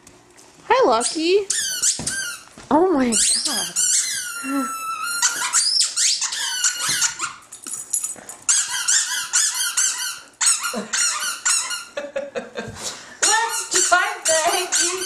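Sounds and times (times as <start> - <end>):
squeaky dog toy squeaking: 1.0 - 2.5, 3.1 - 7.4, 8.5 - 12.0, 13.2 - 15.0.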